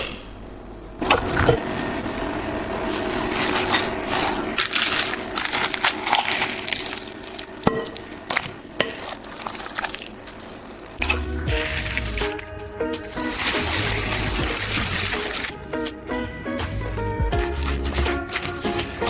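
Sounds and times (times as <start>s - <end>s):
food sizzling in a pan: 13.1s - 15.5s.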